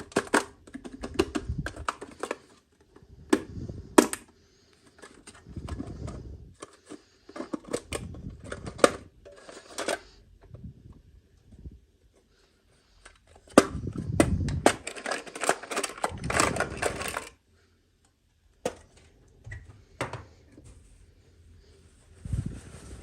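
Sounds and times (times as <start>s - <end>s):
plastic packaging clicks and crinkling: 0.0s - 10.2s, 12.9s - 17.4s.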